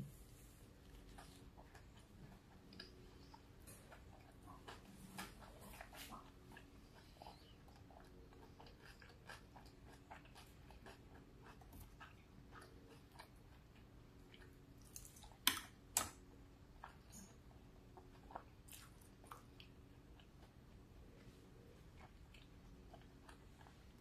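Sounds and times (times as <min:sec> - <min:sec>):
chewing mouth sounds: 0:00.9 - 0:15.7.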